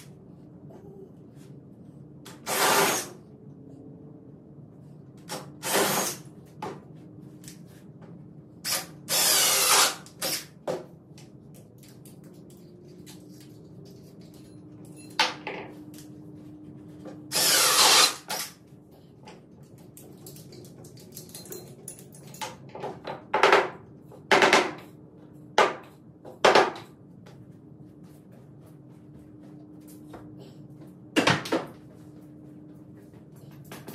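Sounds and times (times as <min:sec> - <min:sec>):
power drill bursts: 0:02.4 - 0:03.1, 0:08.7 - 0:10.5, 0:17.3 - 0:18.5.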